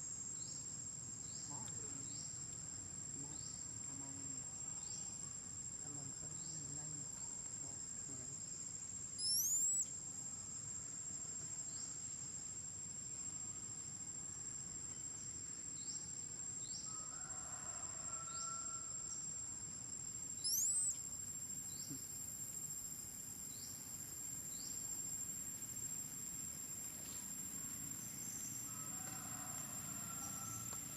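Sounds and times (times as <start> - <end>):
insects droning: 0.0 - 30.9.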